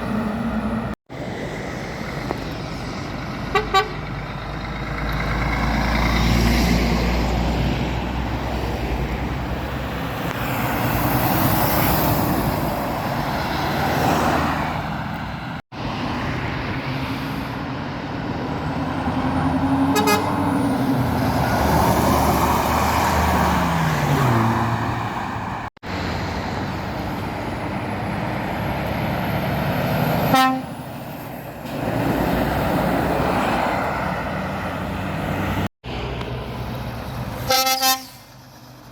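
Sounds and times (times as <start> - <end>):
heavy lorries passing: 0.0 - 38.9
truck horn toots: 3.5 - 4.1, 19.9 - 20.4, 30.3 - 30.8, 37.4 - 38.4.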